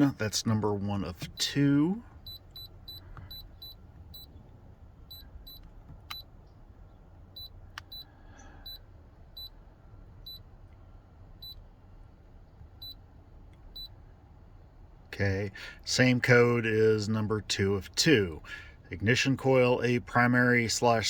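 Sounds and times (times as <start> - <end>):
high-pitched beeps: 2.3 - 4.3, 5.1 - 6.2.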